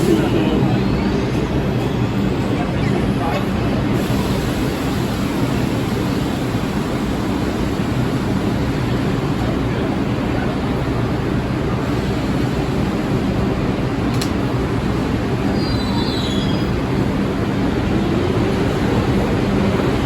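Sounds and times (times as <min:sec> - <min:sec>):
subway train rumble and rattle: 0:00.0 - 0:20.0
train wheels squealing: 0:15.5 - 0:16.8.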